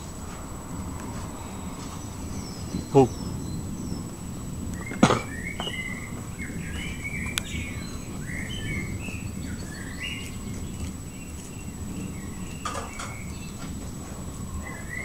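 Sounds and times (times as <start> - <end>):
low background noise: 0.0 - 15.0
small birds chirping: 0.0 - 15.0
sharp knock: 4.9 - 5.8.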